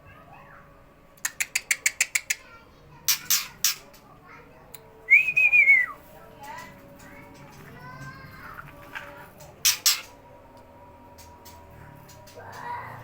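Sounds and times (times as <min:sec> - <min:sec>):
bird ticking calls: 0:01.2 - 0:02.4, 0:03.1 - 0:03.9, 0:09.6 - 0:10.2
harsh rasping bird calls: 0:01.2 - 0:04.0, 0:09.4 - 0:10.3
whistled bird note: 0:05.1 - 0:06.0.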